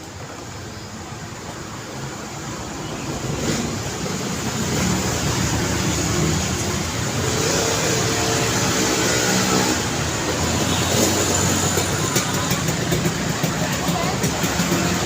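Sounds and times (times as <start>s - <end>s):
road traffic: 0.0s - 15.0s
vehicle engine running: 3.2s - 15.0s.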